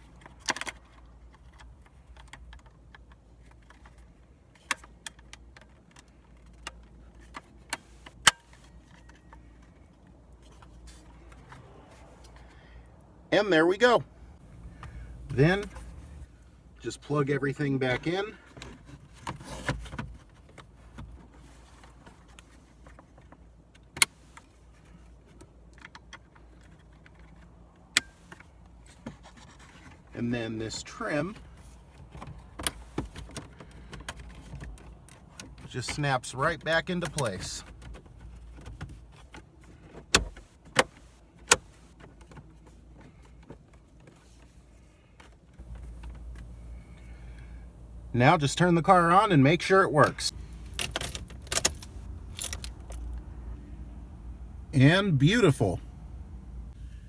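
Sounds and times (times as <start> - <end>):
plastic parts rustling and ticking: 0.0 - 11.6, 50.3 - 53.4
faint handling sounds: 0.0 - 13.2, 14.3 - 48.1, 50.0 - 55.8.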